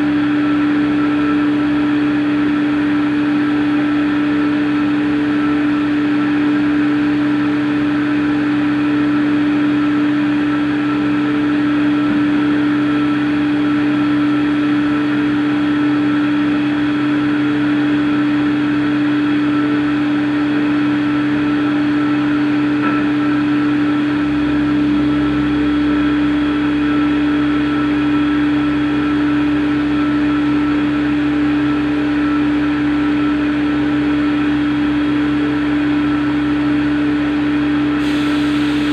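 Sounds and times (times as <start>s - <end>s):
machine humming: 21.2s - 38.9s.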